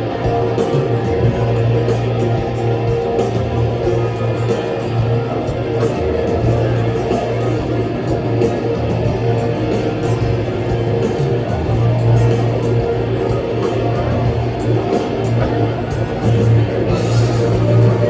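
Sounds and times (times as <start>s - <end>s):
low bass line: 0.0s - 18.0s
rock band playing: 0.0s - 18.0s
strummed guitars: 0.0s - 18.0s.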